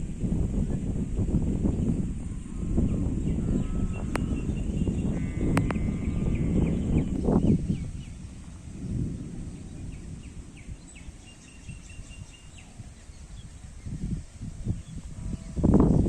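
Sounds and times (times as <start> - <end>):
low uneven rumbling: 0.0 - 16.0
faint bird chirps: 2.8 - 15.7.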